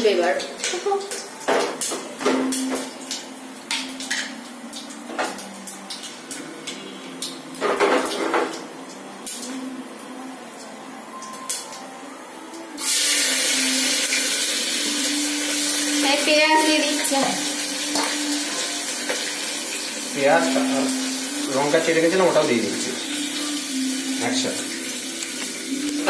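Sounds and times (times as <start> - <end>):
onion sizzling in hot oil: 12.8 - 26.0.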